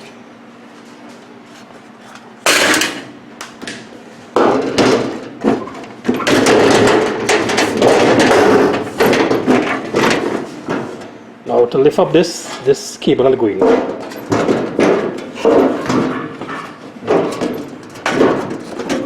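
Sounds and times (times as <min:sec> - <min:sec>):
metal parts clattering: 0:02.0 - 0:03.1.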